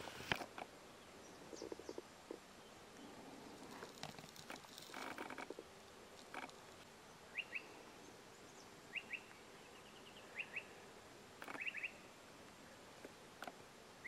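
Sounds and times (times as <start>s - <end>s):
faint steady hiss: 0.0s - 14.0s
small bird chirping: 1.0s - 5.6s, 7.3s - 10.8s, 11.4s - 12.1s.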